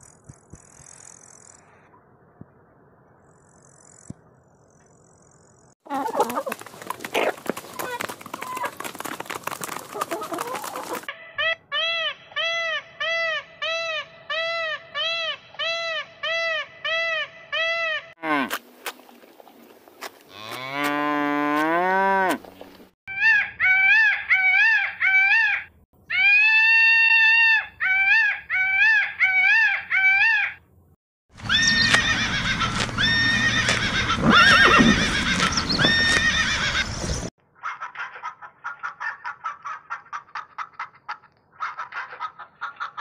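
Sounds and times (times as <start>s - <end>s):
cow mooing: 20.3s - 22.5s
peacock honking calls: 31.4s - 37.3s.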